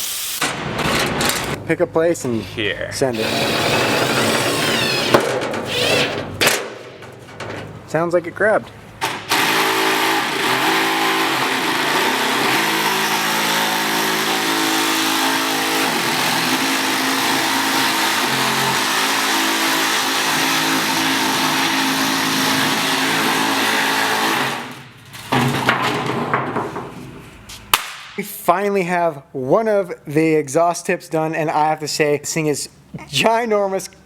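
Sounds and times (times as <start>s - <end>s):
power tool cutting sheet metal: 3.2s - 6.4s, 9.0s - 24.8s.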